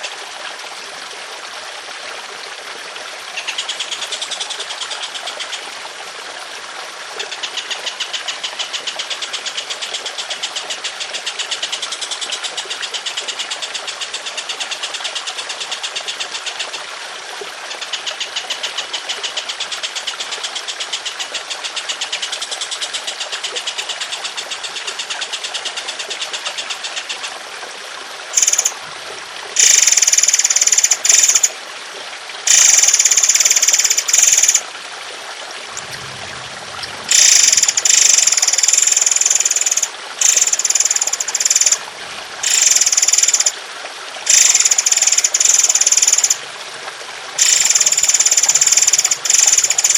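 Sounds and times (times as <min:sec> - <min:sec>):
trickling water: 0:00.0 - 0:49.9
songbird rattling trills: 0:28.4 - 0:28.8, 0:29.6 - 0:31.5, 0:32.5 - 0:34.6, 0:35.7 - 0:41.8, 0:42.4 - 0:43.5, 0:44.3 - 0:46.4, 0:47.4 - 0:49.9
harsh bird call bursts: 0:35.7 - 0:41.8.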